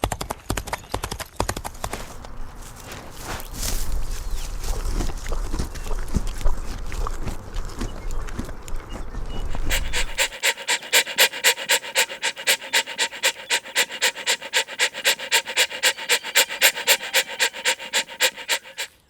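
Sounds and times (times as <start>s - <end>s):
rapid panting: 9.5s - 19.0s.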